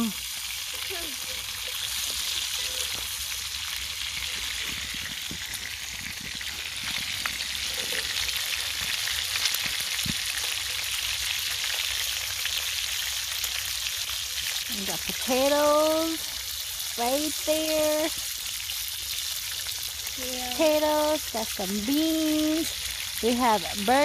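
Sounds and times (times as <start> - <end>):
burgers sizzling in a pan: 0.0 - 24.0
small pops and crackles: 1.8 - 10.5.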